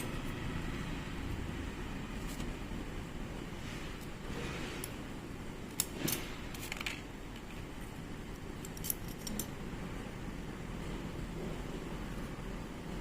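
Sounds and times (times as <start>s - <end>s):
low background hum: 0.0s - 13.0s
metal parts clinking: 8.6s - 9.6s.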